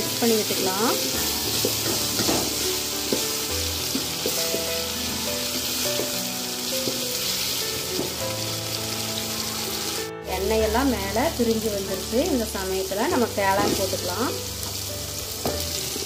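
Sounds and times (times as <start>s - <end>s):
oil sizzling in a pot: 0.0s - 16.0s
wooden spatula stirring: 1.0s - 8.3s.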